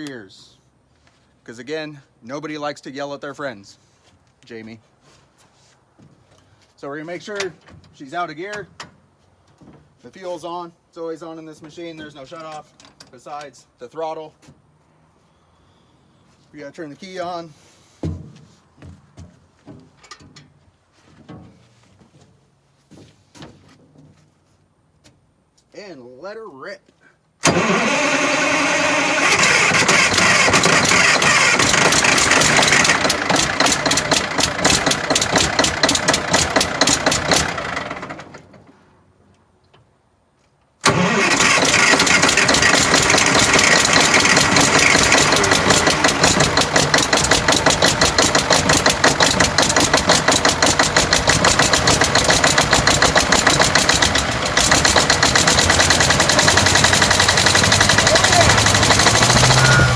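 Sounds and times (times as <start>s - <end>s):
engine running with even firing pulses: 29.3s - 37.7s, 41.6s - 59.9s.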